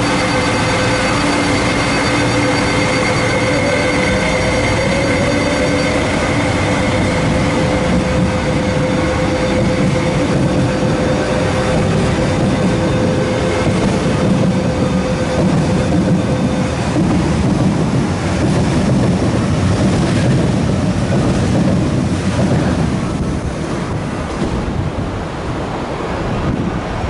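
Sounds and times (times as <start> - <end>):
held tone: 0.0 - 17.5
electric train rumbling past: 0.0 - 27.0.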